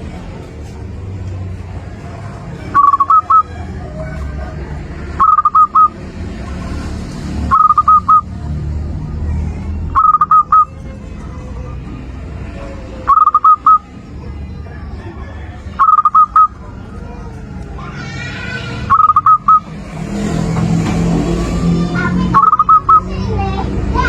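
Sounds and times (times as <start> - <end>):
dove cooing: 2.4 - 6.0, 7.5 - 8.3, 9.6 - 10.8, 12.5 - 17.3, 18.9 - 19.7, 22.4 - 23.0.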